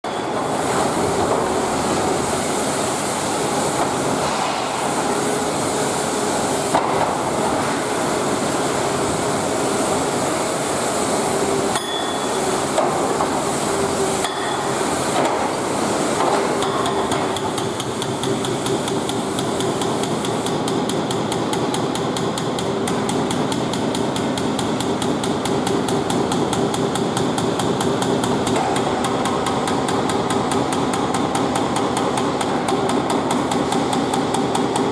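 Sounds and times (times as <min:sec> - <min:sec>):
hydraulic breaker hammer striking: 0:11.7 - 0:13.4, 0:14.2 - 0:15.6, 0:16.2 - 0:34.9.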